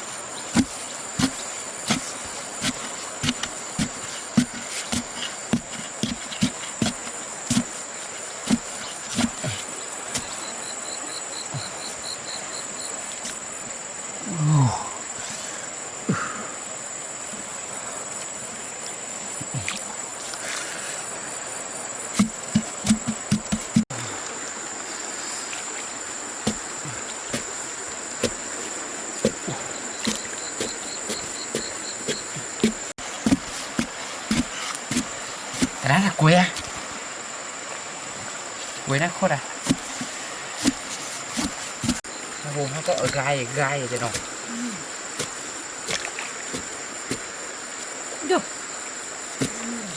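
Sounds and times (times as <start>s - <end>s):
high-pitched insect chorus: 0.0s - 49.9s
soft knocks and thuds from handling: 0.5s - 7.8s, 22.2s - 23.9s, 26.4s - 27.6s, 28.2s - 35.9s, 39.6s - 42.1s.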